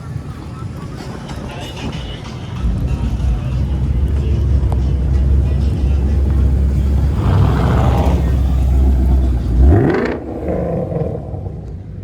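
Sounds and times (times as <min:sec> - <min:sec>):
car engine droning: 0:00.0 - 0:12.0
car engine revving: 0:00.0 - 0:12.0.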